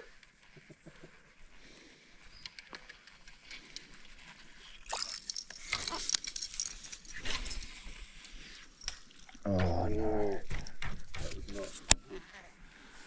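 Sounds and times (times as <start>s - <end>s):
water splashing: 4.8s - 6.2s
fishing lure pattering on water: 4.8s - 7.6s.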